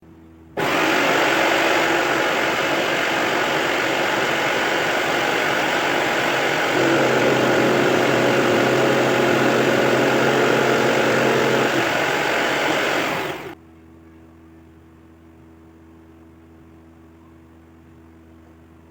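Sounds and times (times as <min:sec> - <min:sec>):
power tool motor running: 0:00.6 - 0:13.6.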